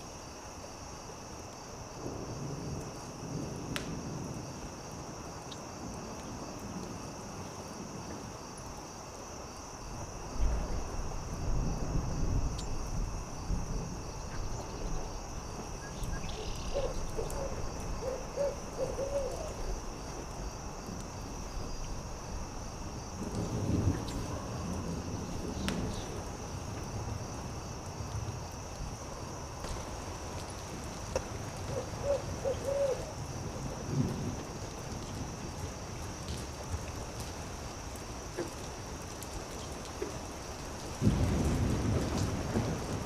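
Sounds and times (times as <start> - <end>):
insect trill: 0.0 - 37.0
campfire crackling: 0.0 - 43.0
owl hooting: 16.1 - 19.6, 31.7 - 33.1.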